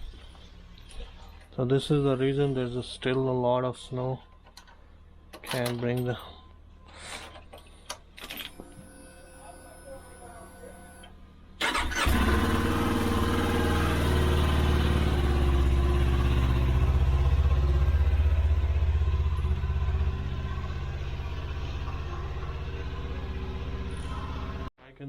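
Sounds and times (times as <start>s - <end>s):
motorcycle engine running: 12.0s - 24.7s.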